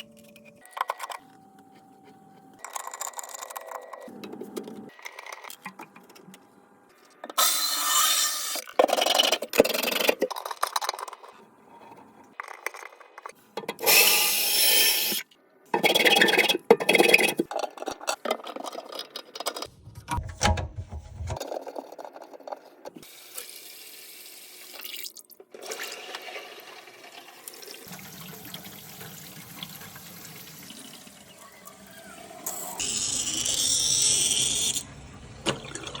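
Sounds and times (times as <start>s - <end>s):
pipe scraping and knocking: 16.8s - 21.5s
water running into sink: 24.6s - 31.3s.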